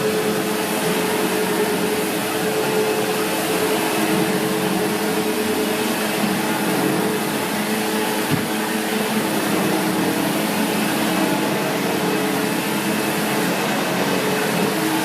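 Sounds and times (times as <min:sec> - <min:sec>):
upright vacuum cleaner running: 0:00.0 - 0:15.0
knock: 0:08.3 - 0:08.6.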